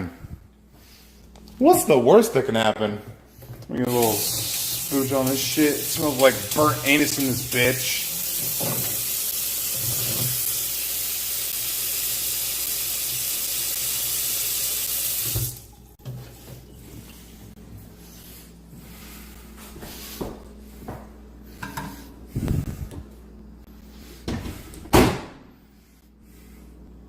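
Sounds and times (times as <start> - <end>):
water running from a tap: 3.9 - 16.0.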